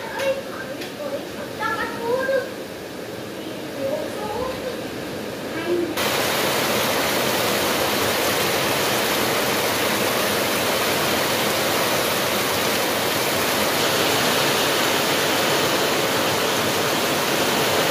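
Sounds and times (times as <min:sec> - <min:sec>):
heavy rain falling: 0:03.4 - 0:17.9
water pouring off roof: 0:06.0 - 0:17.9.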